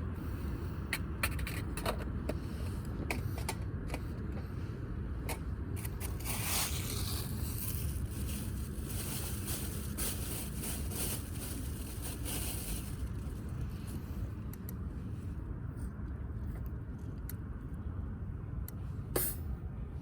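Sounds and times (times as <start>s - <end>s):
steady low rumble: 0.0s - 20.0s
rustling scrape: 5.8s - 13.9s.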